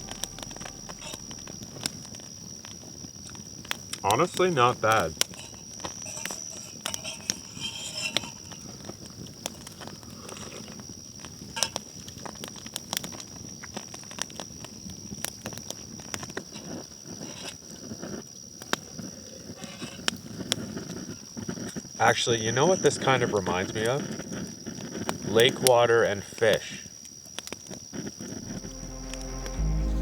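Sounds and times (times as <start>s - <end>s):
high-pitched whine: 0.0s - 2.3s, 28.4s - 30.0s
campfire crackling and popping: 0.0s - 30.0s.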